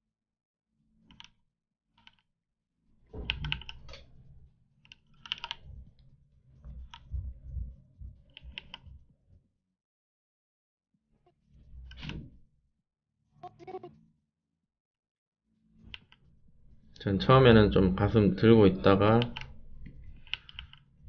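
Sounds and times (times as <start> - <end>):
computer keyboard typing: 3.2 - 4.0, 4.9 - 5.7, 8.3 - 8.9, 19.1 - 20.9.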